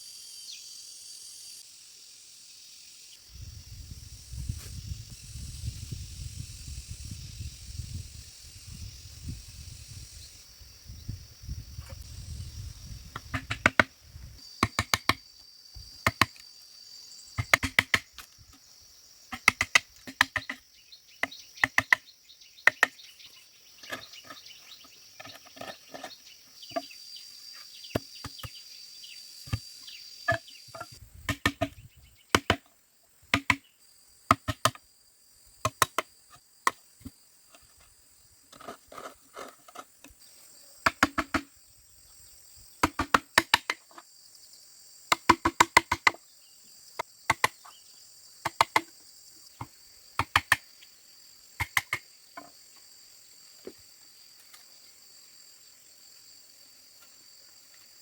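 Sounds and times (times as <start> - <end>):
insects buzzing: 0.0 - 58.0
blade chopping bamboo: 14.6 - 15.2, 17.4 - 18.1, 19.3 - 20.6, 21.6 - 22.0, 31.3 - 31.7, 33.3 - 33.6, 42.8 - 43.8.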